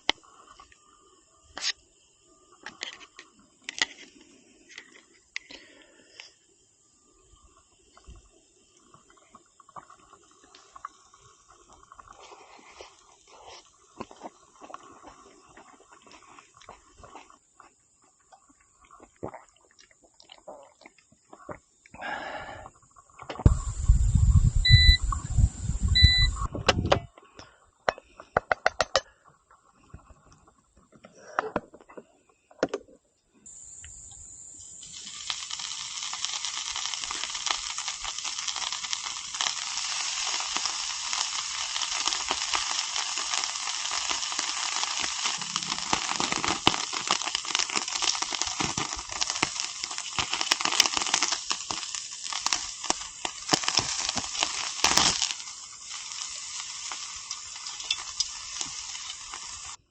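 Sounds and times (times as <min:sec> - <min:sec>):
fire crackling and popping: 0:00.0 - 0:00.8, 0:07.4 - 0:20.0, 0:23.0 - 0:27.0, 0:34.6 - 0:59.9
meat sizzling on a grill: 0:34.4 - 0:59.8.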